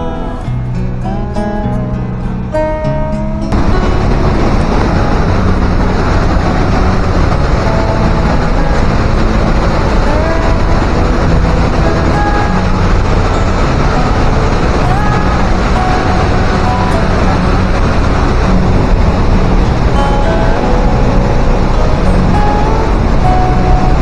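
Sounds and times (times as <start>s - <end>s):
waterfall rushing: 3.5s - 24.0s.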